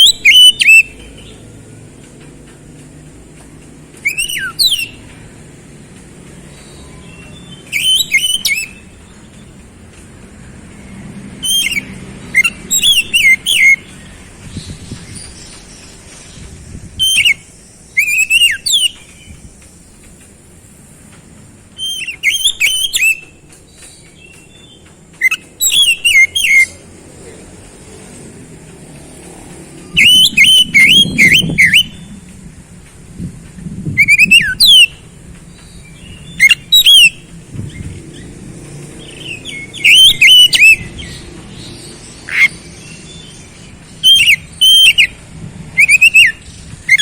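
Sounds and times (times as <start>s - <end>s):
bird whistling song: 0.0s - 1.6s, 3.9s - 5.2s, 6.5s - 9.7s, 11.4s - 20.0s, 21.7s - 26.8s, 29.8s - 32.3s, 33.9s - 38.4s, 39.0s - 47.0s.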